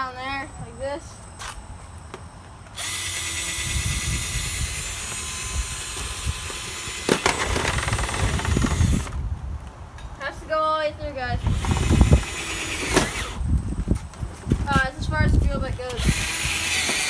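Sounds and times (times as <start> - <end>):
electric drill boring: 2.8 - 9.2, 11.4 - 13.4, 16.0 - 17.0.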